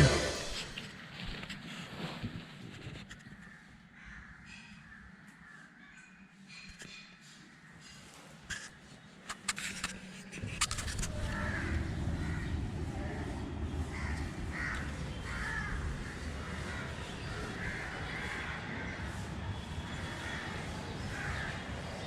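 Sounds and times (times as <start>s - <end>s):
crows cawing: 3.4s - 6.1s, 11.1s - 19.2s, 19.8s - 22.0s
low steady rumble: 10.4s - 17.4s.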